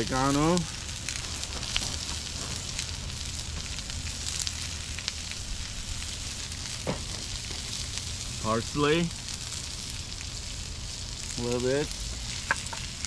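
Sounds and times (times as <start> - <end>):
small crackling pops: 0.0 - 8.2, 9.0 - 13.0
vegetables sizzling on a griddle: 0.0 - 13.0.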